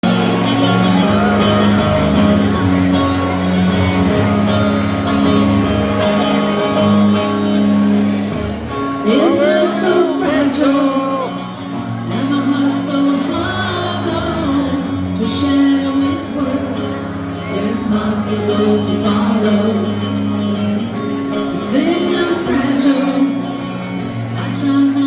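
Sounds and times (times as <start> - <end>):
live band playing slow ballad: 0.0 - 25.0
person's voice: 9.0 - 23.6.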